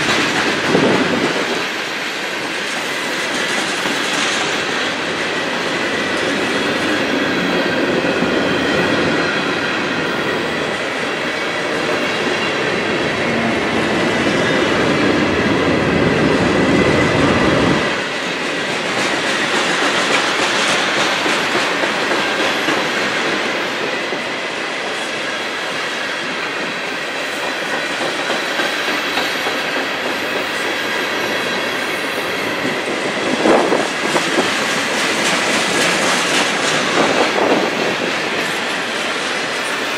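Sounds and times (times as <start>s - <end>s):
train wheels clacking over rail joints: 0.0s - 10.6s, 17.8s - 39.9s.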